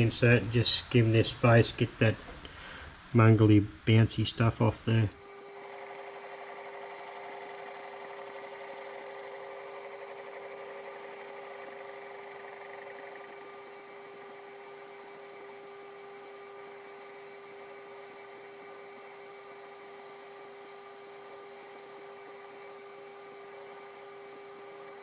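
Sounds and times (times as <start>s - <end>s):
metal lathe humming: 5.2s - 25.0s.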